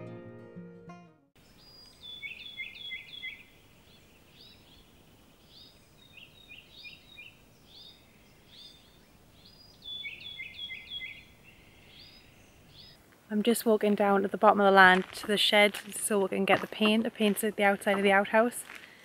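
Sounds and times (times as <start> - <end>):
faint outdoor hiss: 1.4 - 19.0
songbird singing: 1.4 - 19.0.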